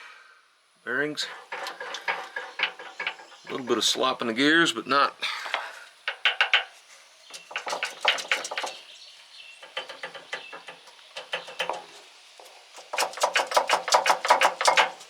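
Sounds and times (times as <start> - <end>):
metal gears clacking: 1.4 - 3.9.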